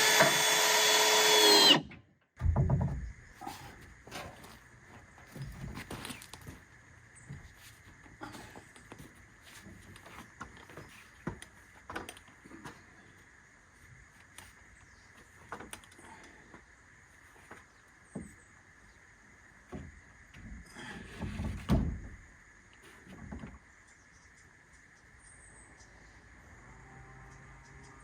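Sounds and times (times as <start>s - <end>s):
thumps: 2.4s - 3.3s
knocks and clatter of hand work: 2.4s - 4.4s.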